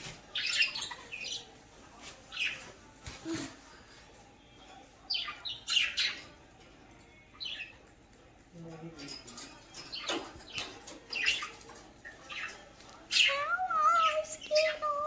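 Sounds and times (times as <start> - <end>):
budgies chirping: 0.0 - 2.8, 5.0 - 6.7, 9.8 - 15.0.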